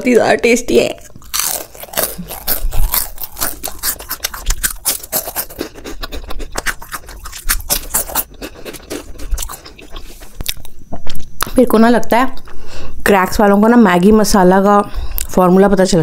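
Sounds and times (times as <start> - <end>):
crisp snack crunching: 1.0 - 11.3.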